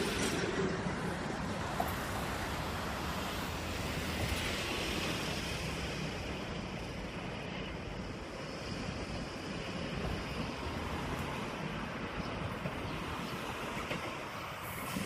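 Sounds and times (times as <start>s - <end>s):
distant train rumble: 0.0s - 15.0s
wind noise on microphone: 0.0s - 15.0s.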